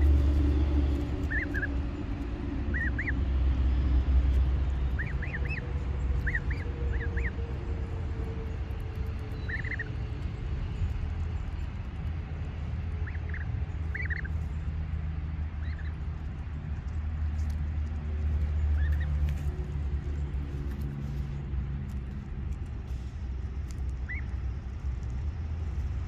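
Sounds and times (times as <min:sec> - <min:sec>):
birds chirping: 0:00.0 - 0:03.4, 0:04.3 - 0:07.7, 0:08.4 - 0:16.6, 0:18.3 - 0:20.5, 0:24.0 - 0:24.4
steady low rumble: 0:00.0 - 0:26.0.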